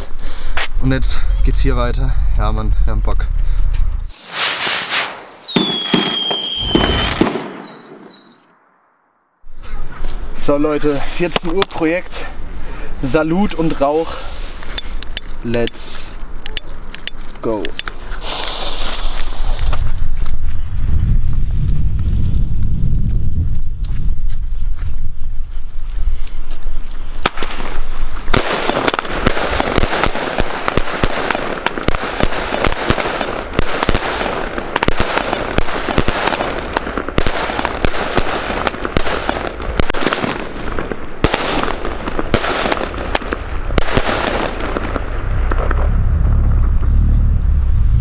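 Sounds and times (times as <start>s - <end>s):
firework bangs: 4.1s - 8.5s, 17.5s - 21.5s, 27.2s - 46.6s
wind rumble on microphone: 19.1s - 28.3s, 42.8s - 48.0s.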